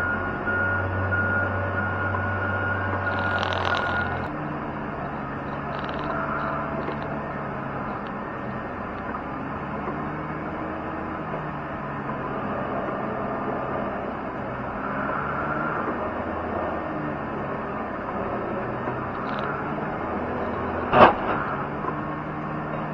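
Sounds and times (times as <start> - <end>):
high whine: 0.0 - 9.4
diesel engine running: 0.0 - 22.9.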